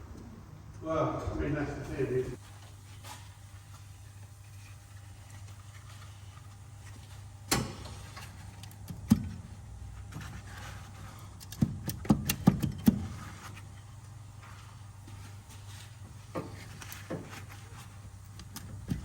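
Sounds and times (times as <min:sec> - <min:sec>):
steady low hum: 0:00.0 - 0:19.0
sharp knocks and clicks: 0:11.4 - 0:13.1.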